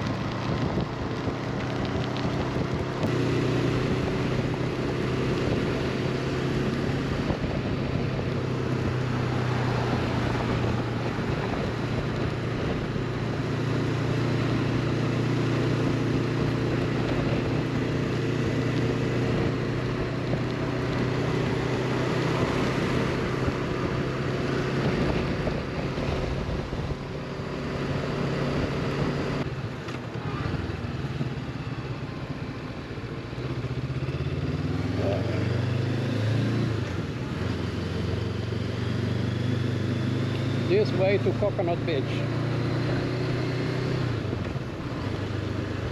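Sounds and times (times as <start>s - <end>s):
wind rushing over microphone: 0.0s - 32.0s
motorcycle engine cruising: 0.0s - 45.9s.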